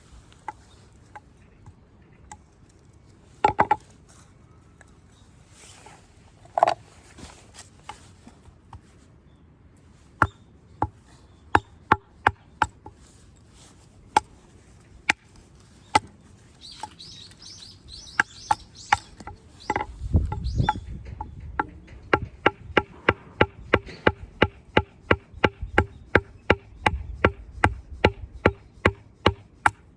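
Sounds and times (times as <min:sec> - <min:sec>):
bird chirping: 0:15.7 - 0:22.4, 0:25.3 - 0:27.6.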